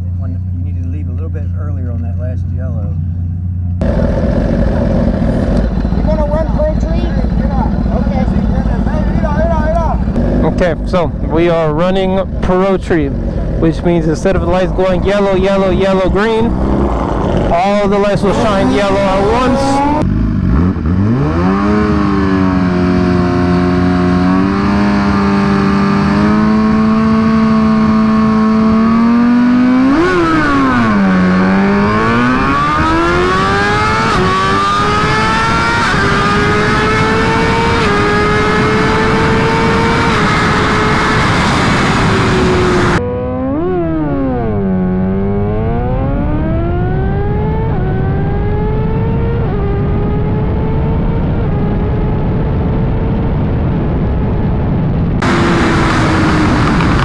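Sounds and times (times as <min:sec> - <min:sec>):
quick gear upshifts: 0:00.0 - 0:43.0, 0:55.2 - 0:57.0
motorcycle engine revving: 0:00.0 - 0:53.1, 0:55.2 - 0:57.0.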